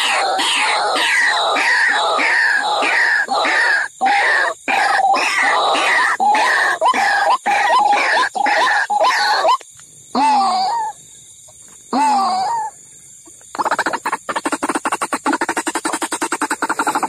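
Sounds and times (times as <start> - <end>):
waterhen calls: 0.0 - 9.6, 13.5 - 17.0.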